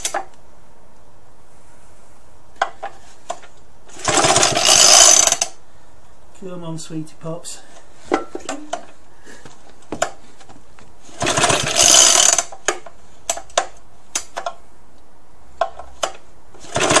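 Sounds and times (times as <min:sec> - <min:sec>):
pull-starter rope rasping whir: 0:03.8 - 0:05.6, 0:11.1 - 0:12.6, 0:16.5 - 0:17.0.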